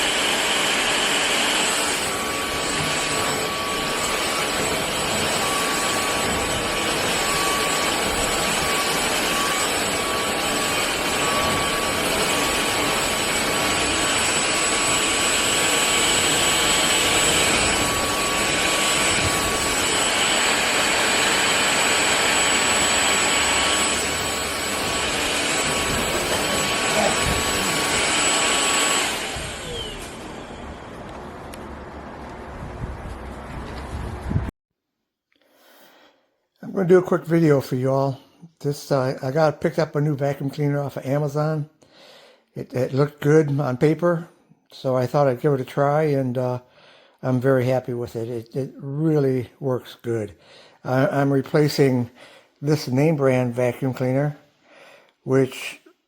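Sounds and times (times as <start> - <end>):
stick vacuum running: 0.0 - 32.4.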